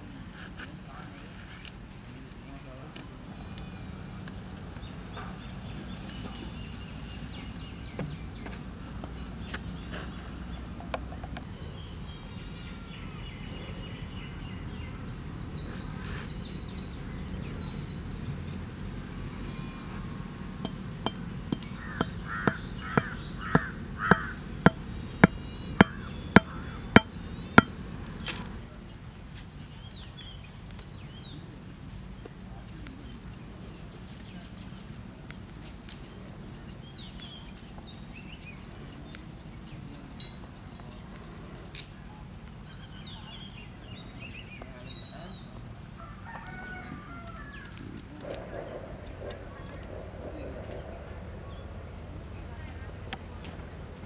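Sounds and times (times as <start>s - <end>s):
outdoor background noise: 0.0s - 54.0s
sharp knocks: 20.6s - 27.8s.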